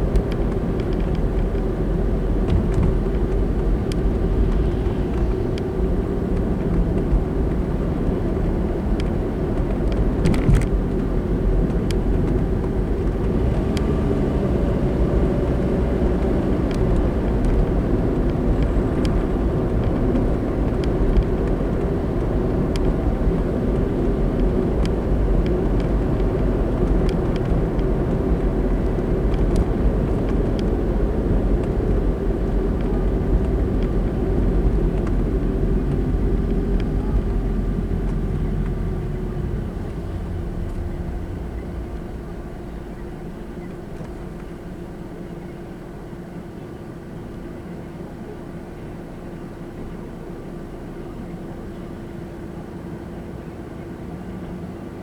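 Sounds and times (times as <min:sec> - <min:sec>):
car driving road rumble: 0:00.0 - 0:55.0.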